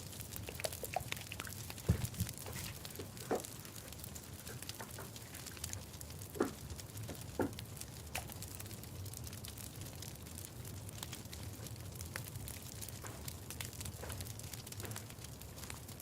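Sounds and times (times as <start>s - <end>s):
soft clicks and crackles: 0.0s - 16.0s.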